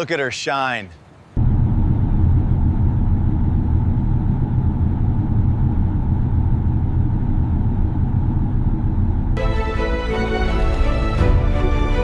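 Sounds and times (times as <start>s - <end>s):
deep vehicle rumble: 1.4s - 9.4s.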